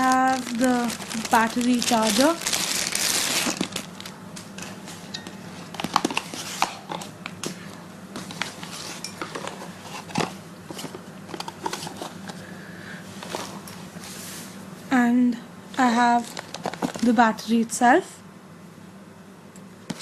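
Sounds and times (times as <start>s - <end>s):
plastic packaging crinkling: 0.0s - 4.6s, 5.6s - 7.0s, 16.2s - 17.2s
faint steady hum: 0.0s - 20.0s.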